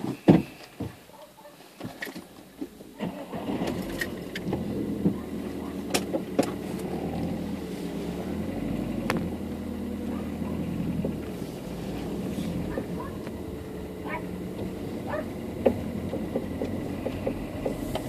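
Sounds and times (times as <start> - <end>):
car engine starting and running: 2.4 - 18.0.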